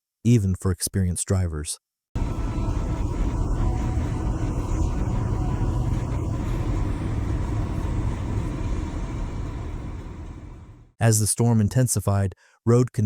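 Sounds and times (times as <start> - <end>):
faint steady tone: 2.2 - 10.9
steady low bass rumble: 2.2 - 10.9.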